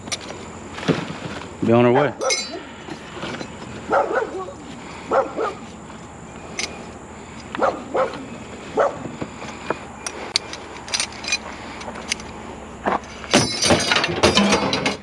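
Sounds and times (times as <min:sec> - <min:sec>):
dog barking: 0:01.9 - 0:02.4, 0:03.9 - 0:05.6, 0:07.6 - 0:09.0.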